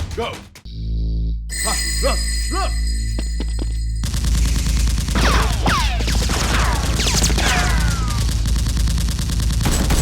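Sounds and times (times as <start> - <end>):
rapid automatic gunfire: 4.0 - 10.0.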